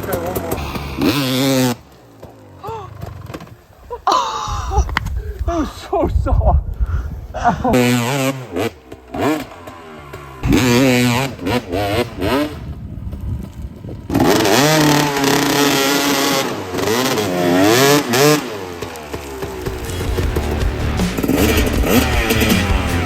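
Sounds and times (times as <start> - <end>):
dirt bike engine revving: 0.0 - 3.8, 7.4 - 23.0.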